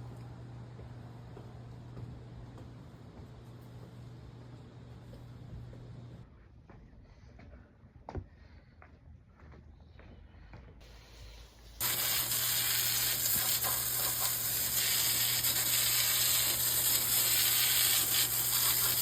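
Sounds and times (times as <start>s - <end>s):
machine hissing loudly: 10.8s - 19.0s.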